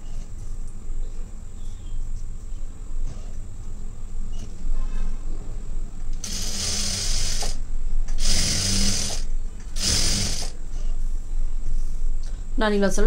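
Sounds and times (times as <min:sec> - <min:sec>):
sewing machine stitching: 0:06.2 - 0:07.6, 0:08.2 - 0:10.5.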